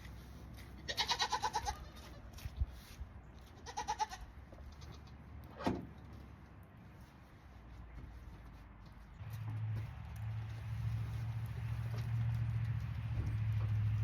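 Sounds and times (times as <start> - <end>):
goat bleating: 0.8 - 2.3, 3.4 - 5.2.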